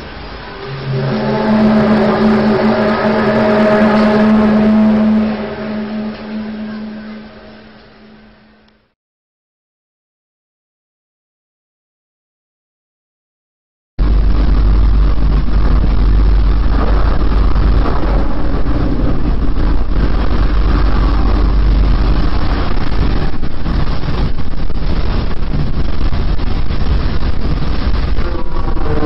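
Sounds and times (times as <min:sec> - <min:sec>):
deep rumble with rough roar: 0:00.0 - 0:08.9, 0:14.0 - 0:29.0.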